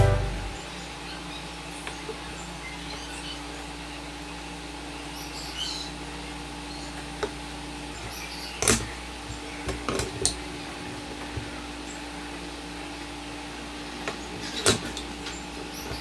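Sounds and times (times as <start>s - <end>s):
low hum: 0.0s - 0.7s.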